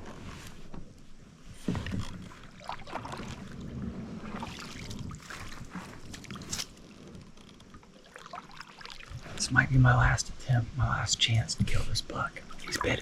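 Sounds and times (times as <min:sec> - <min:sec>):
paddle strokes splashing water: 0:01.4 - 0:09.4, 0:12.5 - 0:13.0.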